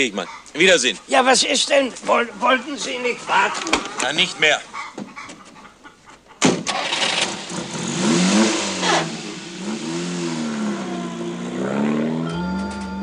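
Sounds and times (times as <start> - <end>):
car engine starting and revving: 6.5 - 13.0.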